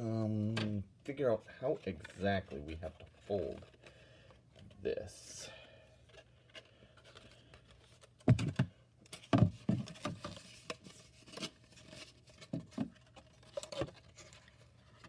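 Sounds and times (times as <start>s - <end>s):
cardboard tapping and rustling: 7.1s - 15.0s.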